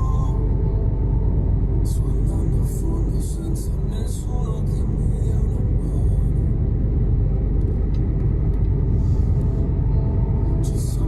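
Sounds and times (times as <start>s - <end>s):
truck engine and road rumble: 0.0s - 11.0s.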